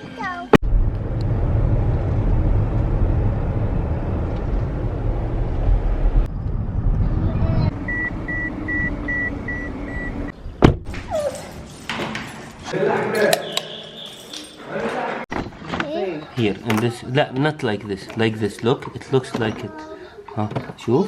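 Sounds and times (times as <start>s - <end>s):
car engine rumble inside cabin: 0.6s - 10.3s
short electronic car beeps: 7.9s - 10.3s.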